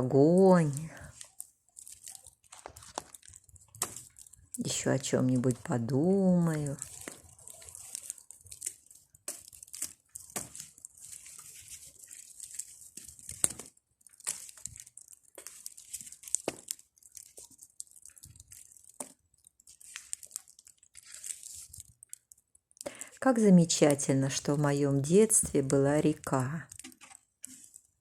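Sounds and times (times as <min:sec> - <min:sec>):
bonfire crackling and popping: 0:00.0 - 0:28.0.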